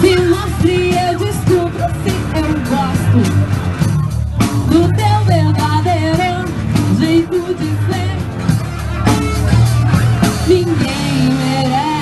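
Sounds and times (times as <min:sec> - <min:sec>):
rock band playing live: 0:00.0 - 0:12.0
person singing: 0:10.3 - 0:12.0.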